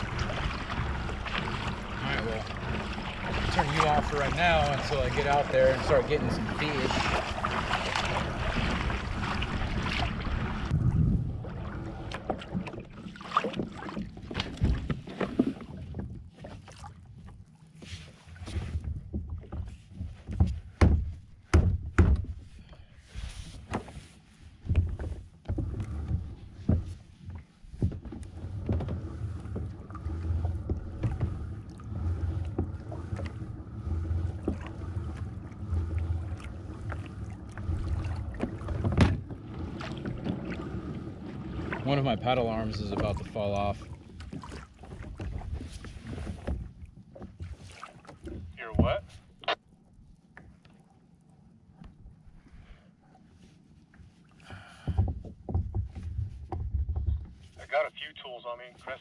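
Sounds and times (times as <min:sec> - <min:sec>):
low rumble: 0:00.0 - 0:13.0, 0:28.2 - 0:43.4
knocks and clunks of gear: 0:18.5 - 0:22.4, 0:24.6 - 0:27.0, 0:38.4 - 0:39.5, 0:54.7 - 0:57.4.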